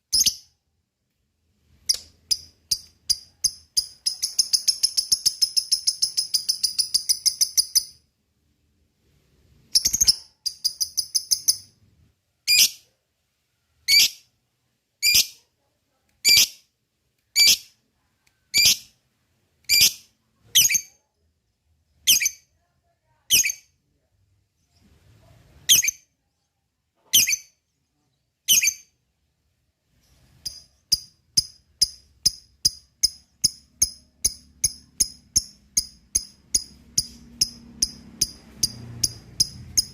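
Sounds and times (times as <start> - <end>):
lovebird sharp chirps: 0.1 - 0.5, 1.9 - 8.0, 9.7 - 11.8, 12.5 - 12.8, 13.9 - 14.3, 15.0 - 15.4, 16.2 - 16.6, 17.3 - 17.8, 18.5 - 18.9, 19.7 - 20.9, 22.0 - 22.5, 25.7 - 26.1, 27.1 - 27.6, 28.4 - 29.0, 30.4 - 39.9.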